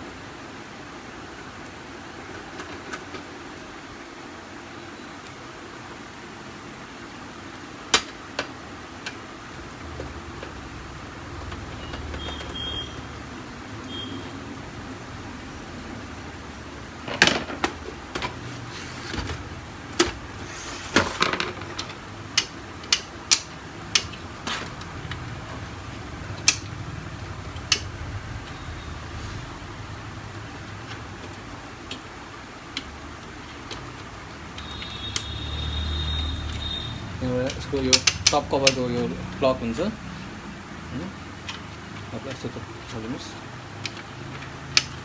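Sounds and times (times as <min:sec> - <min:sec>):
sharp plastic clicks and knocks: 0:21.2 - 0:26.8, 0:36.4 - 0:39.1, 0:41.4 - 0:45.0.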